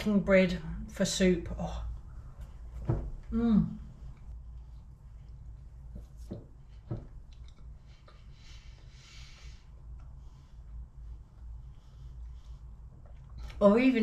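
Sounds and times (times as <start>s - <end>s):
low steady hum: 0.0s - 14.0s
chewing crusty bread: 7.1s - 8.3s, 9.9s - 13.6s.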